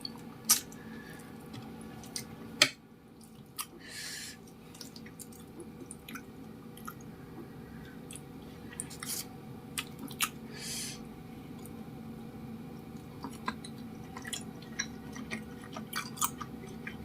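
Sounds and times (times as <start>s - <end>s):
wet chewing sounds: 8.0s - 10.4s, 12.9s - 17.0s.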